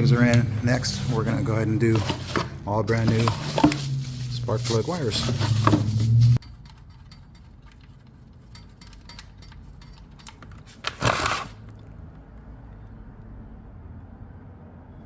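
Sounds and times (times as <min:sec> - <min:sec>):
clicks of parts being handled: 0:06.4 - 0:11.0.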